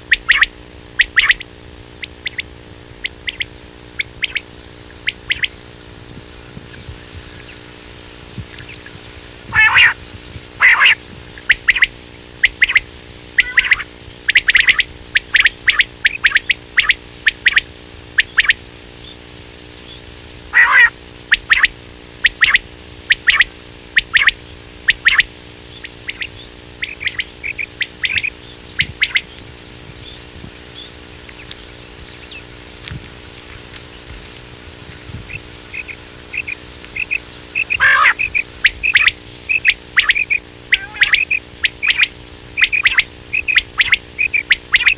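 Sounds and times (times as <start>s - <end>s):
quail calls: 0.1s - 19.2s, 19.9s - 44.9s.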